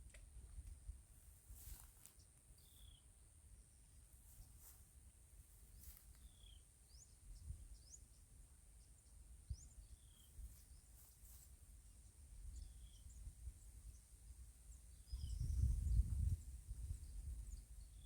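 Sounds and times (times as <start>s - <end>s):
faint bird chirps: 1.6s - 3.2s, 3.9s - 18.0s
low wind rumble: 15.0s - 18.0s.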